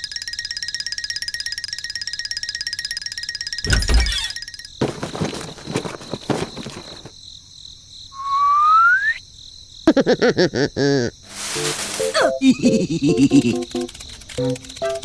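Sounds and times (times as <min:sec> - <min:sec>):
cartoon rising whistle: 0:08.2 - 0:09.2.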